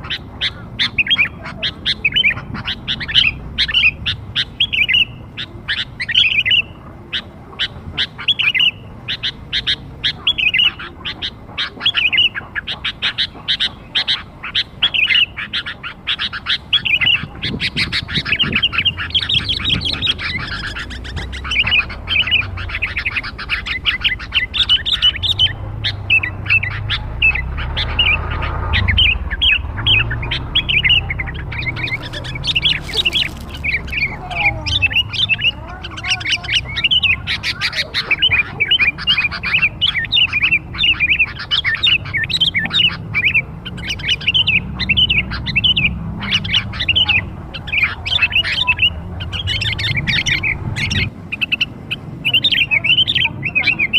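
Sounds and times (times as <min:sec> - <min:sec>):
bird chattering high chirps: 0:00.0 - 0:53.9
low rumble: 0:17.9 - 0:35.5, 0:42.8 - 0:51.3.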